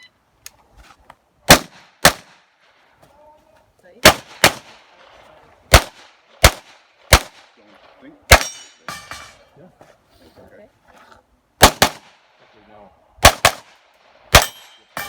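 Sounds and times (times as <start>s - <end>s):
carbine gunshots: 1.5s - 2.4s, 4.0s - 5.1s, 5.7s - 8.7s, 11.6s - 12.2s, 13.2s - 15.0s.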